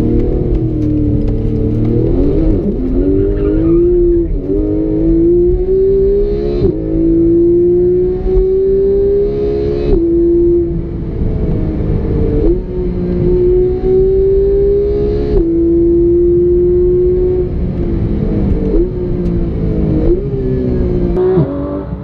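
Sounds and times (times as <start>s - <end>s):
exhaust crackle: 0.0s - 4.7s
car engine accelerating: 0.0s - 22.0s.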